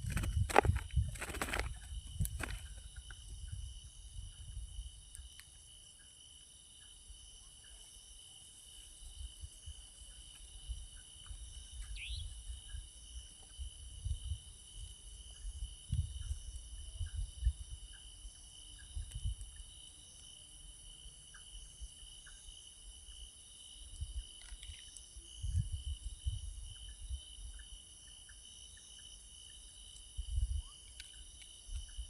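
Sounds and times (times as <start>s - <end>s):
low thumps and rustles: 0.0s - 2.8s
crickets trilling: 0.0s - 32.0s.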